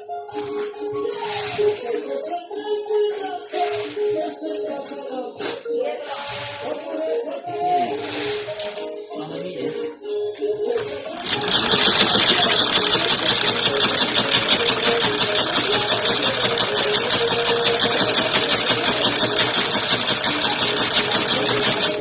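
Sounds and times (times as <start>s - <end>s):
sewing machine clattering: 10.8s - 22.0s.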